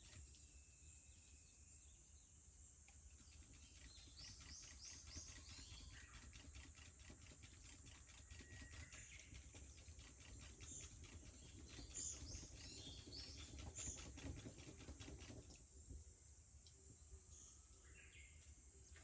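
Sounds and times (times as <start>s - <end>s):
cicadas buzzing: 0.0s - 15.6s
bird chirps: 3.1s - 6.9s, 8.1s - 14.7s.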